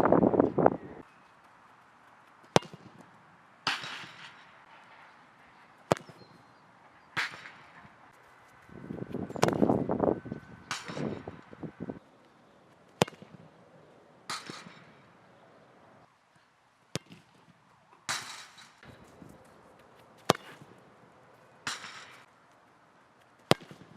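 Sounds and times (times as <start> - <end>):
ball hitting crossbar: 2.5 - 3.0, 3.6 - 4.5, 5.9 - 6.2, 7.2 - 7.8, 9.1 - 9.8, 10.7 - 11.6, 13.0 - 13.4, 20.2 - 20.8, 21.6 - 22.2, 23.5 - 23.9
football being kicked: 2.5 - 3.0, 8.9 - 9.8, 20.2 - 20.7.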